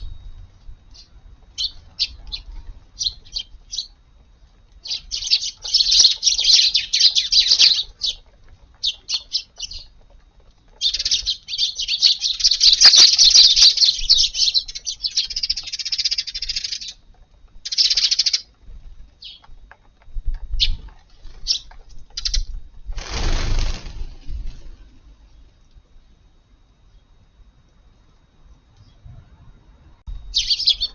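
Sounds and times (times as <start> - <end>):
sparrows chirping: 0.9 - 10.0, 10.7 - 17.0, 17.6 - 18.5, 19.2 - 19.5, 20.6 - 22.5, 30.2 - 30.9.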